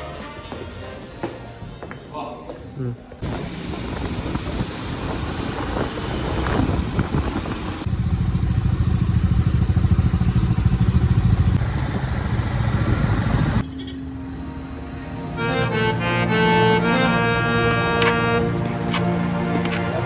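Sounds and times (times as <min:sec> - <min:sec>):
motorcycle engine running: 0:03.2 - 0:15.5.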